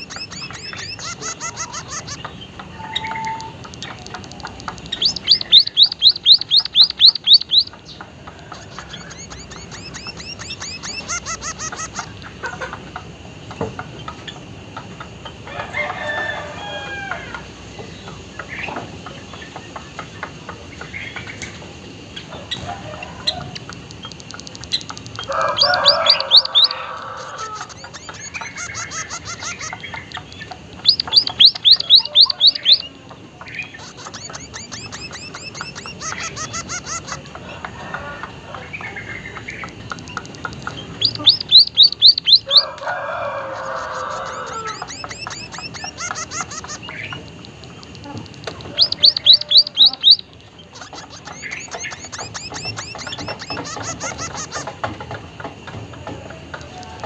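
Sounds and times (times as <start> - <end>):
bird song high rising notes: 0.0 - 12.2, 24.8 - 33.0, 40.8 - 42.8
harsh bird calls: 0.0 - 57.0.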